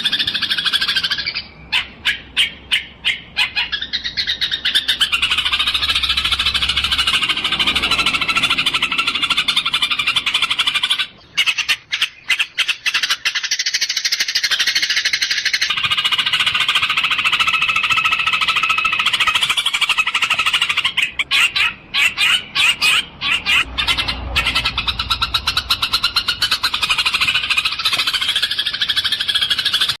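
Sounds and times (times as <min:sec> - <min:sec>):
sparrows chattering: 0:00.0 - 0:30.0.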